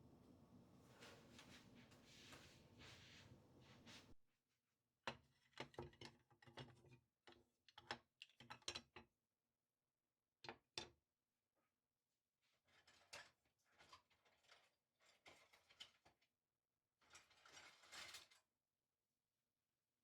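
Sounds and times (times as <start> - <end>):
faint steady hiss: 0.0 - 4.2.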